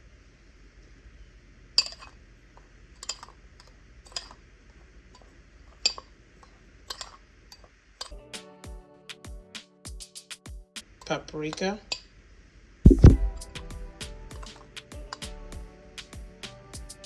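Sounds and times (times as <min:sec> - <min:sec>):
background music with a beat: 0:08.1 - 0:10.8, 0:12.9 - 0:17.0.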